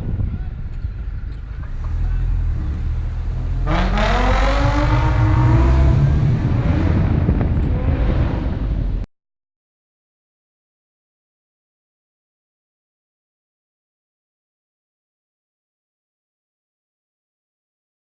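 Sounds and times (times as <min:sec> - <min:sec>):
wind buffeting microphone: 0:00.0 - 0:02.2, 0:03.0 - 0:09.1
car engine accelerating hard: 0:01.6 - 0:09.0.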